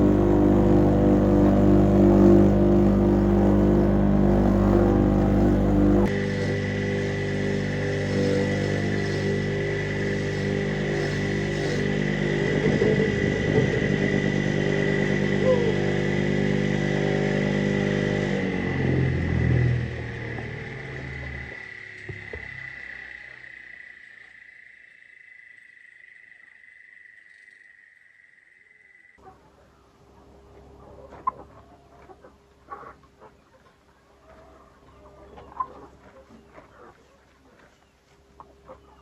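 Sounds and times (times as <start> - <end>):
small engine running: 0.0 - 23.5.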